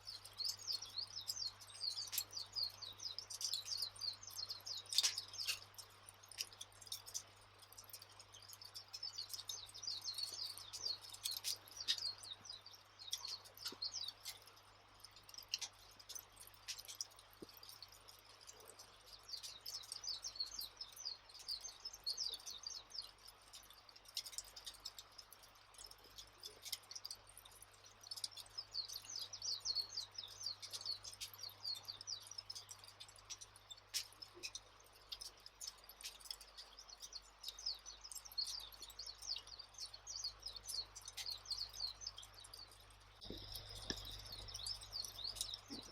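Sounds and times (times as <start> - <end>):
small birds chirping: 0.0 - 45.9
wood fire crackling: 4.9 - 20.0, 42.1 - 45.9
campfire crackling and popping: 39.8 - 45.9.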